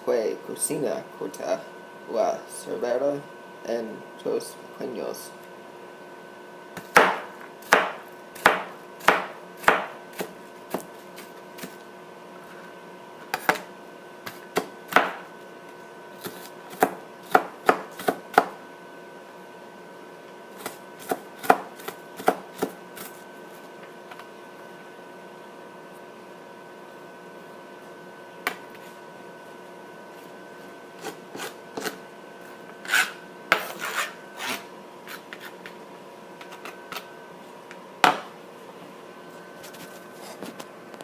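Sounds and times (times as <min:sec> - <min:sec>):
knife chopping on cutting board: 0:06.8 - 0:11.8, 0:13.3 - 0:15.2, 0:16.2 - 0:18.6, 0:20.6 - 0:23.2, 0:31.0 - 0:32.0, 0:32.9 - 0:35.8.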